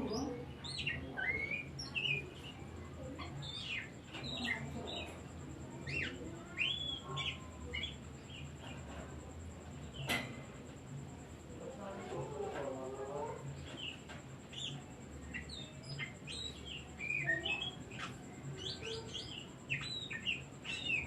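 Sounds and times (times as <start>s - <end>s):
bird singing whistled notes: 0.1s - 2.3s, 13.8s - 21.0s.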